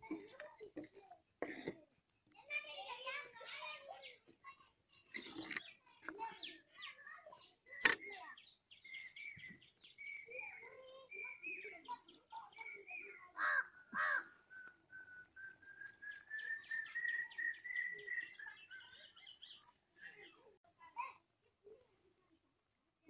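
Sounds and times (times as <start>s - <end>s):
birds chirping: 2.2s - 21.1s
long rising bird call: 13.0s - 19.3s.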